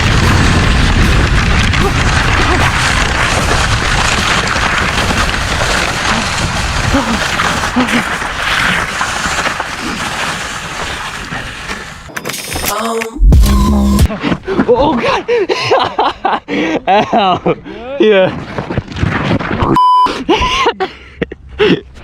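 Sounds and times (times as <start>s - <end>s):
heavy low rumble: 0.0s - 8.2s.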